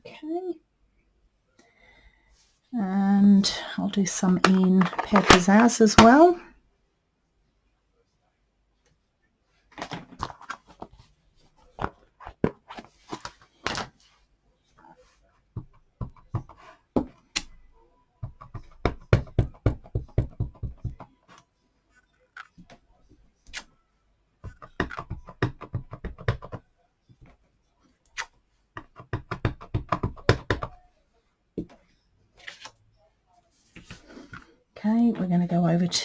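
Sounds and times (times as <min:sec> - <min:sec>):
stamp knocking on ink pad: 0:18.2 - 0:21.0, 0:24.5 - 0:26.6, 0:28.8 - 0:30.7.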